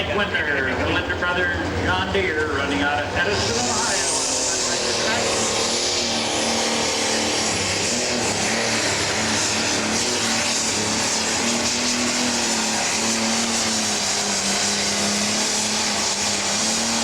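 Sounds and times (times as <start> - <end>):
diesel engine running at high revs: 0.0 - 17.0
hiss of exhaust and turbo: 3.4 - 17.0.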